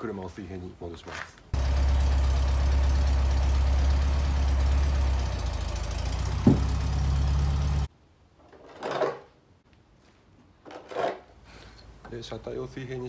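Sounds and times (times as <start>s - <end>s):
car engine idling: 1.6s - 7.9s
sharp clunk: 6.4s - 6.8s.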